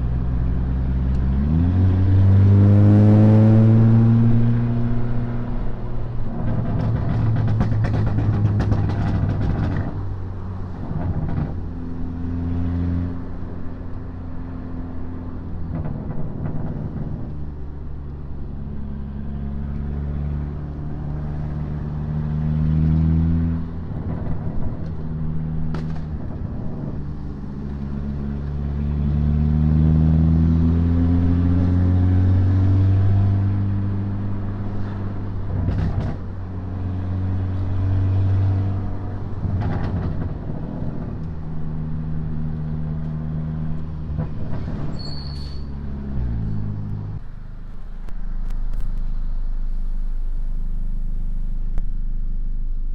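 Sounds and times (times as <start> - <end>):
car engine accelerating through gears: 0.0 - 51.8.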